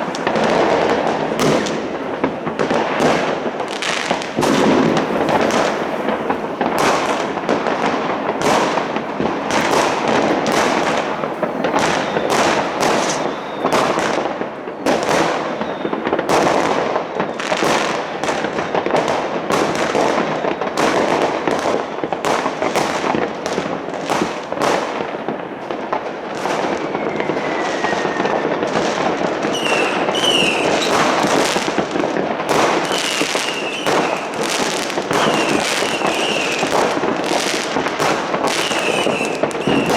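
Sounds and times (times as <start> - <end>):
falling firework whistle: 0.0 - 19.1, 26.4 - 39.9
fireworks banging and crackling: 0.0 - 39.9
short firework whistles: 3.9 - 7.6, 8.4 - 17.8, 26.4 - 31.8, 32.5 - 39.9.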